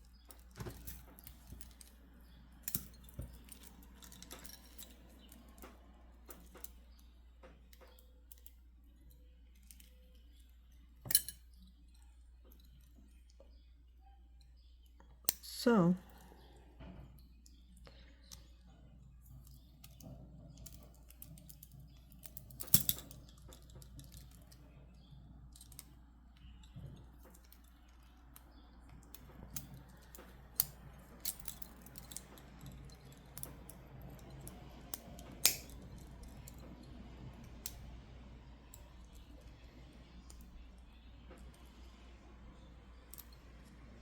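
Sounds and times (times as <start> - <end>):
low room hum: 0.0 - 44.0.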